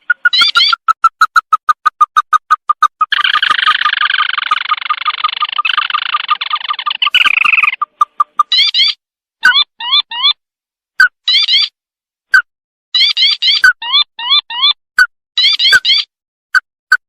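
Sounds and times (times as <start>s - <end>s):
bird call rapid trill: 0.0s - 10.4s.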